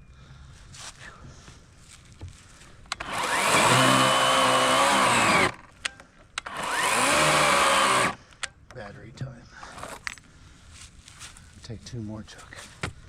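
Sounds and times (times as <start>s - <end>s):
electric chainsaw cutting log: 2.9s - 5.7s, 6.4s - 8.2s.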